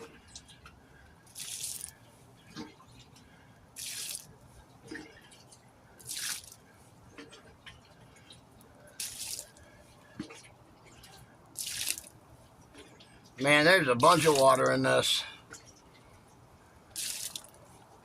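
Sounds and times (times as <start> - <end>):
water dripping: 0.2 - 13.3, 16.9 - 17.7
water splashing out: 1.3 - 1.9, 3.8 - 4.3, 6.0 - 6.6, 9.0 - 9.6, 11.6 - 12.1, 17.0 - 17.6.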